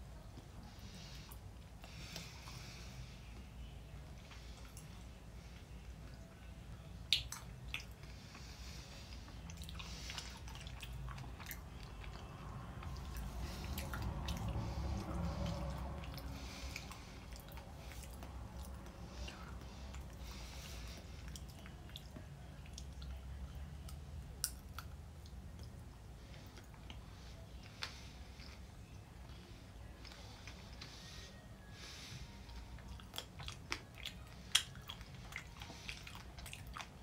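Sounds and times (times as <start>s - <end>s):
chewing candy: 7.0s - 31.0s, 32.0s - 37.0s.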